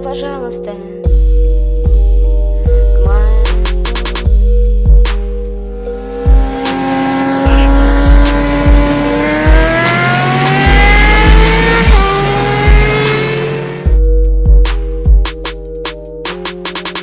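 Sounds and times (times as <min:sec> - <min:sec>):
music with thudding beat: 0:01.0 - 0:17.0
motorcycle engine accelerating: 0:04.0 - 0:14.0.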